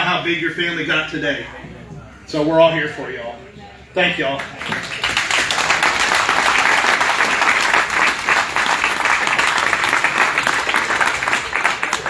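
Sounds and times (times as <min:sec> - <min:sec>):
crowd applauding: 0:04.4 - 0:12.0.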